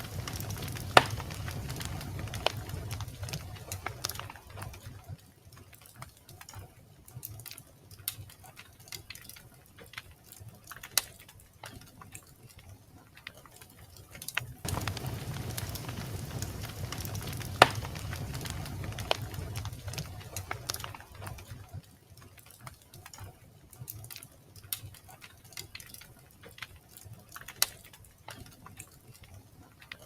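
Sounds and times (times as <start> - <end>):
low rumble of flames: 0.0 - 5.2, 14.6 - 22.6
wood fire crackling and popping: 0.0 - 30.0.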